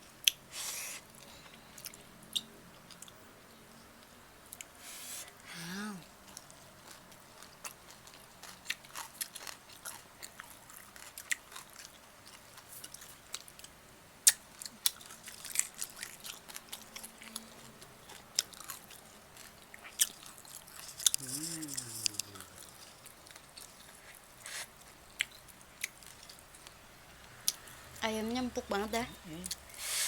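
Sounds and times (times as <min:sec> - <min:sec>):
chewing and lip smacking: 0:14.3 - 0:21.2, 0:24.8 - 0:26.7.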